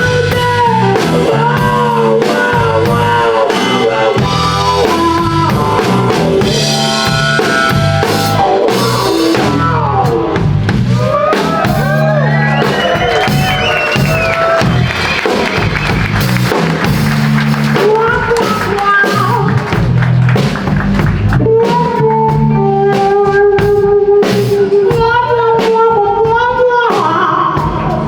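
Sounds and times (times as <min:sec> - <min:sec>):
drum kit beat: 0:00.0 - 0:28.0
low bass notes: 0:00.0 - 0:28.0.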